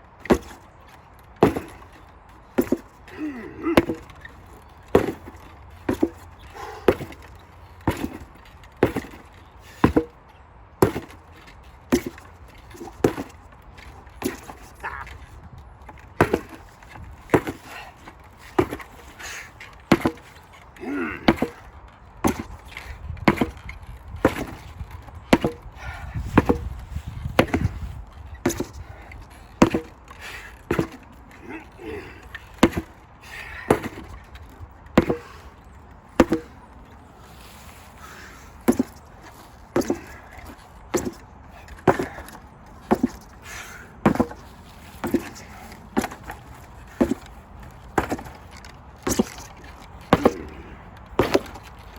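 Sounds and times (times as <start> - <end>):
sledgehammer striking: 9.8 - 10.2, 15.9 - 16.6, 19.9 - 20.3, 25.3 - 25.6, 27.4 - 27.7, 29.6 - 30.0, 32.6 - 32.9, 35.0 - 35.4, 36.2 - 36.6, 39.7 - 41.2, 47.9 - 50.6, 51.2 - 51.7.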